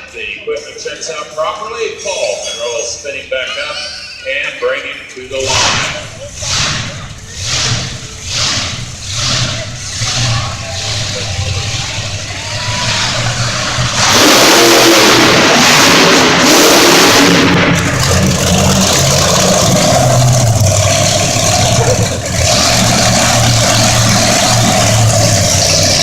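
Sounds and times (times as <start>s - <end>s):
heavy rushing noise: 5.2s - 26.0s
monster truck engine revving: 5.2s - 26.0s.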